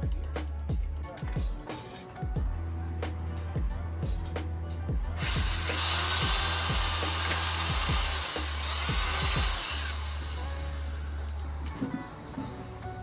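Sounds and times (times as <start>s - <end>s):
power drill whining: 5.2s - 11.3s.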